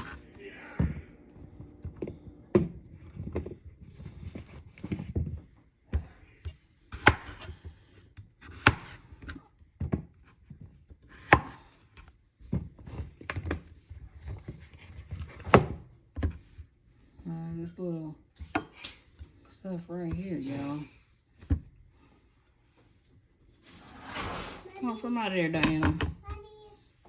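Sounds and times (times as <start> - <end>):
knife chopping potatoes: 5.9 - 11.8.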